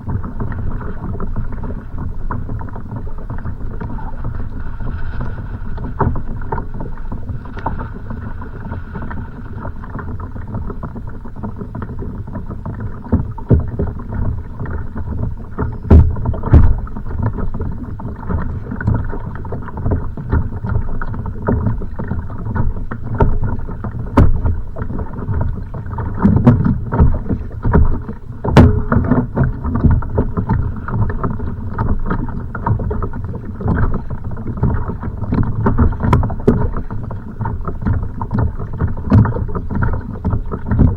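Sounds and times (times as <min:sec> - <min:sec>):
strong wind: 0:00.0 - 0:10.8
knocks and thumps on boat: 0:00.0 - 0:40.9
waves slapping against kayak: 0:00.0 - 0:40.9.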